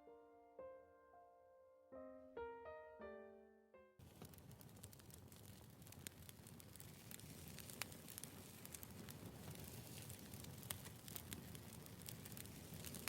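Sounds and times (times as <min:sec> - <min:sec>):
firewood crackling and popping: 0:04.0 - 0:13.0.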